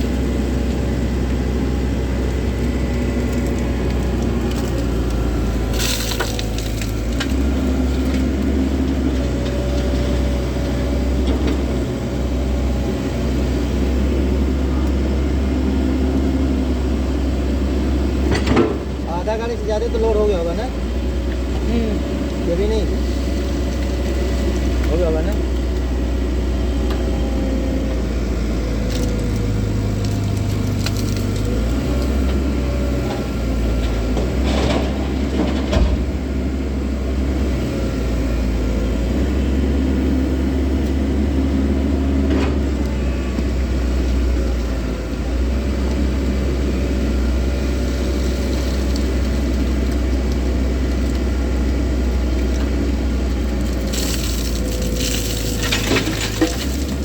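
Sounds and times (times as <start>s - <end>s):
excavator diesel engine running: 0.0s - 57.0s
rock and soil clattering: 2.2s - 10.2s, 28.8s - 36.2s, 47.8s - 57.0s
rock crashes: 53.8s - 57.0s.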